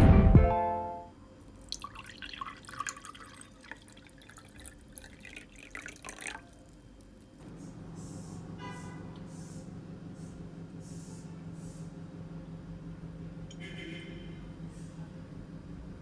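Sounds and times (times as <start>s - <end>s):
steady low hum: 0.0s - 16.0s
water dripping and splashing: 1.5s - 7.4s.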